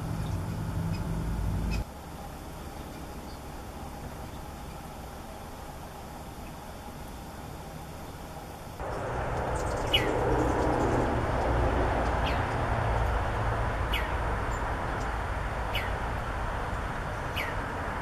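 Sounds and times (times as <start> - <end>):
low outdoor rumble and hiss: 0.0 - 18.0
small bird calling: 8.8 - 11.1, 15.7 - 16.0, 17.2 - 17.6.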